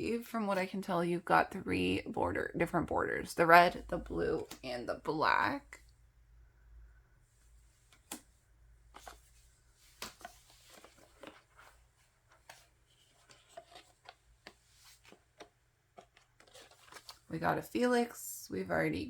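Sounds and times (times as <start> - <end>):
cards tapping and clicking: 7.9 - 8.3.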